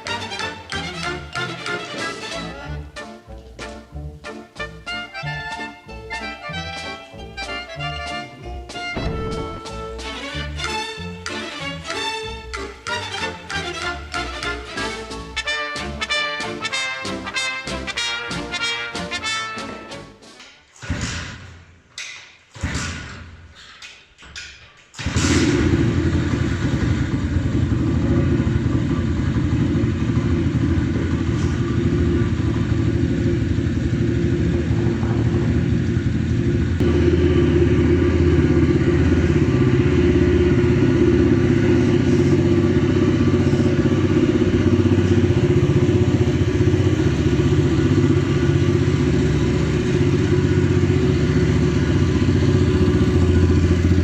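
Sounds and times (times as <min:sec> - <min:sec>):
motorbike engine starting and running: 0:00.0 - 0:02.4, 0:08.9 - 0:16.6, 0:25.0 - 0:54.0.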